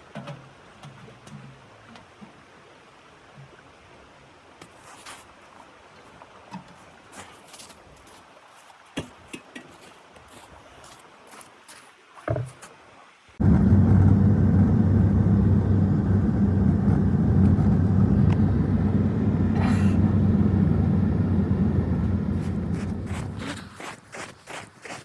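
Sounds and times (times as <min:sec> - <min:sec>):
engine humming: 0:13.4 - 0:23.7.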